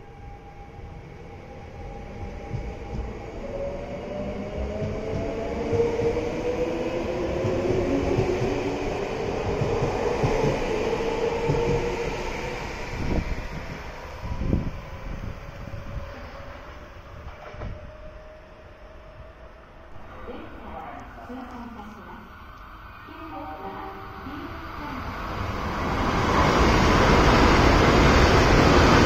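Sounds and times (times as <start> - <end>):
electric train whine: 0.0 - 29.0.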